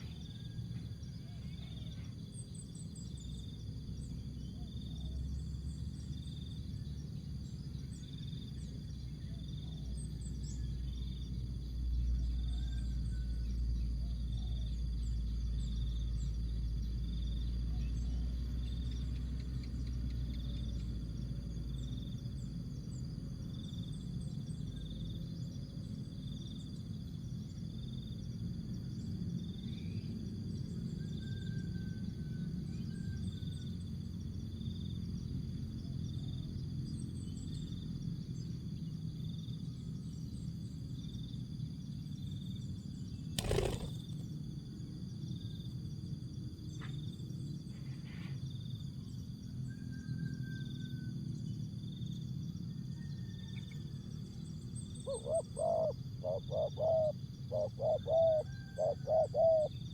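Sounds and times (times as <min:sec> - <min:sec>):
high thin insect chirp: 0:43.2 - 0:44.3.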